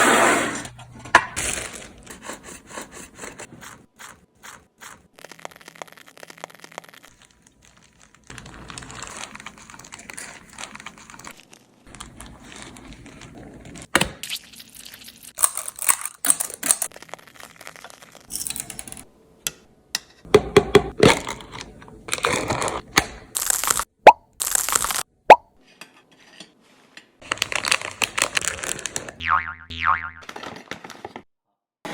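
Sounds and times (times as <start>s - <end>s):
packaging crinkling: 5.2s - 13.8s, 23.4s - 25.0s, 27.2s - 29.2s.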